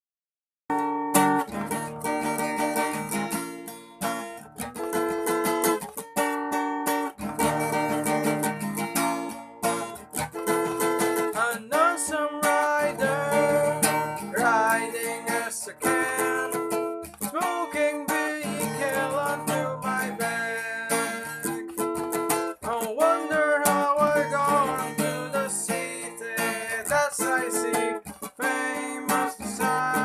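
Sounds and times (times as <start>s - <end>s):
strummed guitar chords: 0.7s - 30.0s
person singing: 11.2s - 30.0s.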